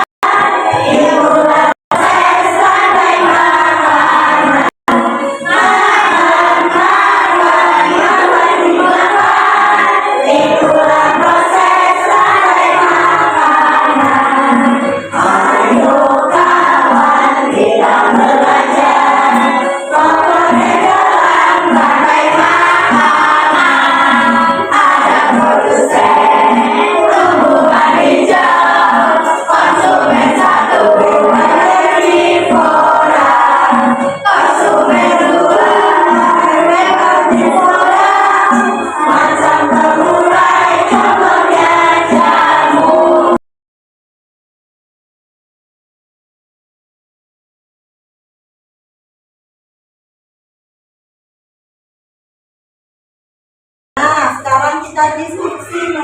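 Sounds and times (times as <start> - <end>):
children singing in unison: 0.2 - 43.4.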